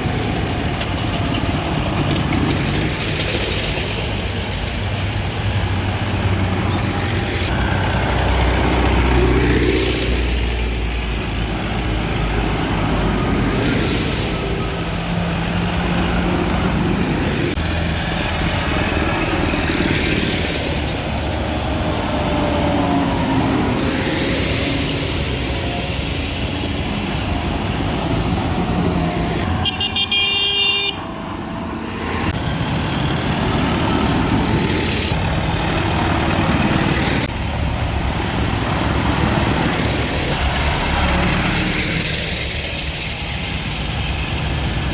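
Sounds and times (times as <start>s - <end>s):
tractor engines running: 0.0s - 44.9s
vehicle horn toot: 29.5s - 31.0s.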